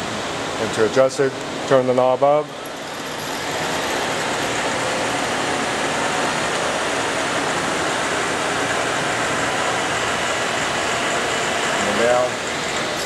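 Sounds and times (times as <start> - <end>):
lathe running: 2.6 - 13.0.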